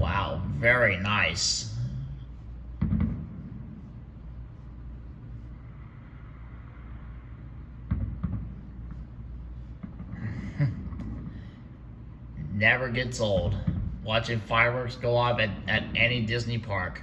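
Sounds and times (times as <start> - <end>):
low outdoor rumble: 0.0 - 17.0
distant fireworks booming: 2.6 - 3.8, 7.7 - 11.7.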